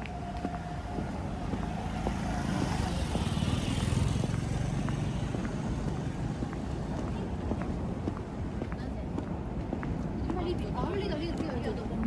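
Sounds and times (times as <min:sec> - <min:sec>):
vehicle passing by: 0:00.0 - 0:08.0.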